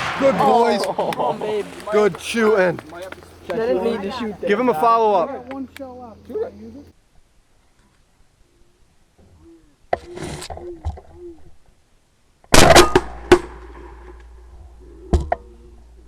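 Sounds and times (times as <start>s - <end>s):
shotgun shots: 0.0s - 2.7s
faint sharp report: 0.0s - 3.6s
short calls: 0.0s - 4.7s.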